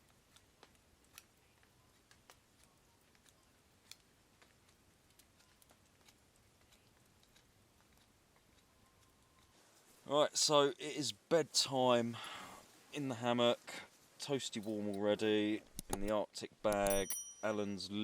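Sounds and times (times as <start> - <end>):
faint ticks and crackles: 0.0 - 10.6
clicks: 15.7 - 17.6.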